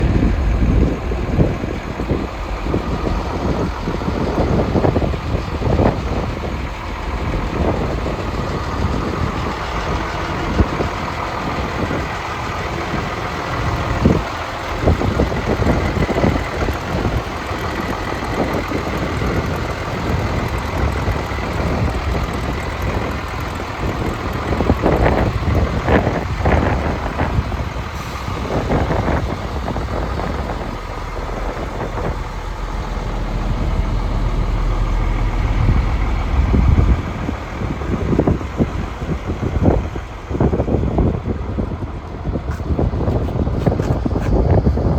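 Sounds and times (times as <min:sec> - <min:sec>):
diesel truck engine idling: 0:00.0 - 0:44.9.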